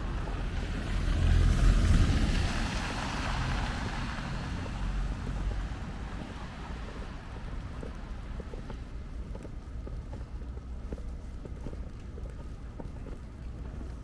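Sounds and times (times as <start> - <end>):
vehicle passing by: 0.0 - 8.2.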